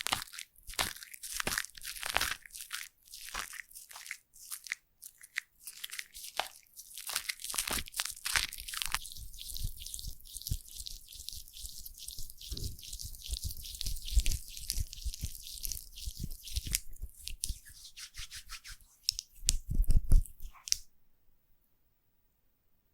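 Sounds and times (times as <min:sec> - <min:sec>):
foam crackling and squishing: 0:00.0 - 0:17.4.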